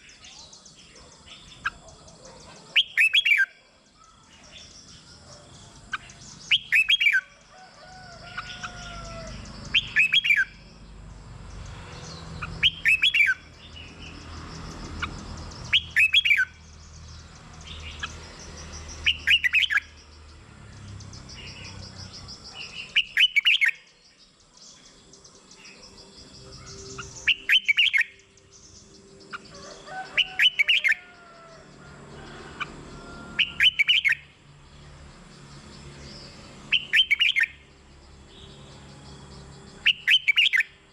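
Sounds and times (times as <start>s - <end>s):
bulbul singing bright phrases: 0.0s - 7.5s, 8.1s - 40.9s
faint chirps of other birds: 0.0s - 40.9s.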